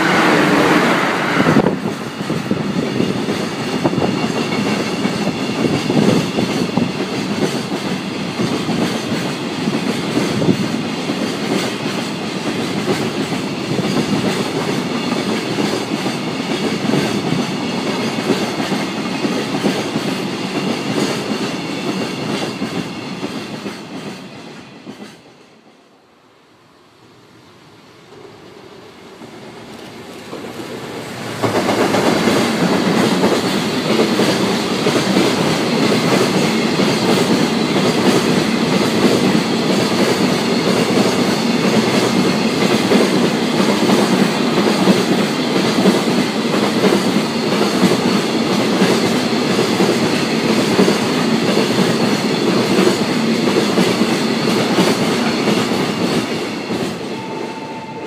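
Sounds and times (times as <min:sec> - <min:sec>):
electric locomotive: 0:00.0 - 0:58.0
freight train rattling past: 0:00.0 - 0:58.0.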